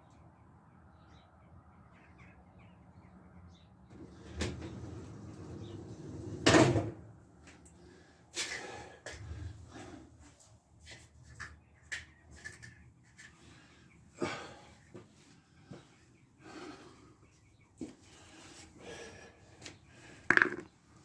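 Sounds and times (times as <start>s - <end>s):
knocks: 20.3s - 20.7s.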